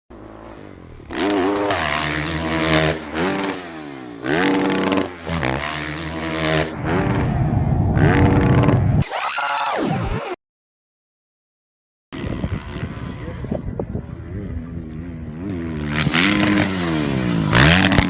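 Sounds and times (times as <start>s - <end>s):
dirt bike engines revving: 0.1s - 7.4s, 8.0s - 8.9s, 12.2s - 18.0s.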